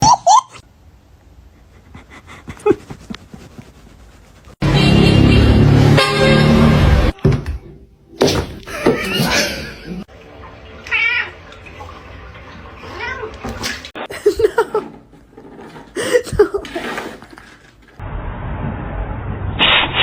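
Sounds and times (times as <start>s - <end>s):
cat meowing: 10.8s - 11.4s.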